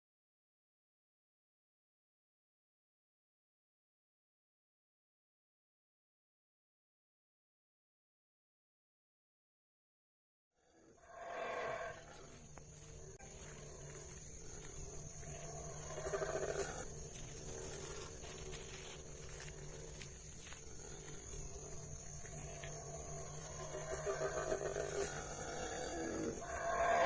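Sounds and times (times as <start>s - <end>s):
animal calling: 15.4s - 16.9s, 22.5s - 27.0s.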